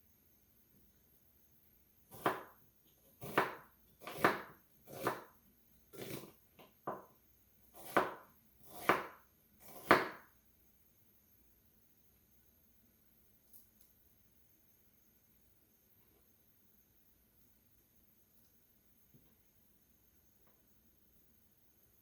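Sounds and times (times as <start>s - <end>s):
knife slicing onion on board: 2.1s - 7.1s, 7.7s - 10.3s.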